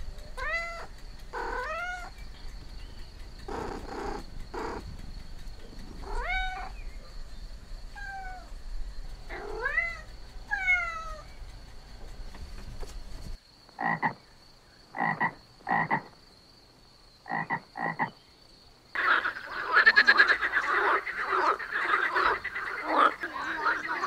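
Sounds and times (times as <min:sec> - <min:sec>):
frog croaking: 0:00.4 - 0:07.1, 0:09.2 - 0:11.4, 0:13.7 - 0:14.2, 0:14.9 - 0:16.2, 0:17.2 - 0:18.2, 0:18.9 - 0:24.0.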